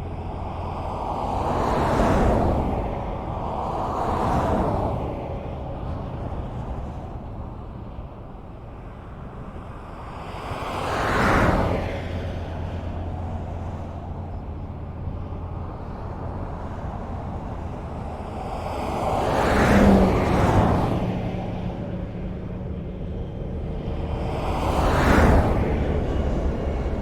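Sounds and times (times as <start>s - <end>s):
distant highway traffic rumble: 0.0s - 27.0s
car passing close by: 0.2s - 8.0s, 9.5s - 27.0s.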